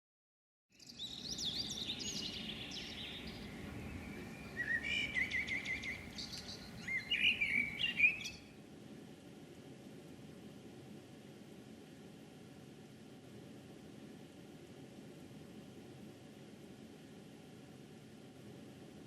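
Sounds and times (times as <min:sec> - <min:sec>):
songbirds chirping and singing: 0:00.8 - 0:08.5.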